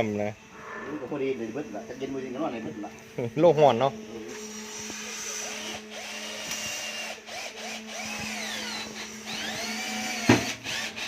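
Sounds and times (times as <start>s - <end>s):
steady hum: 0.0s - 4.3s
electric power tool running: 3.9s - 11.0s.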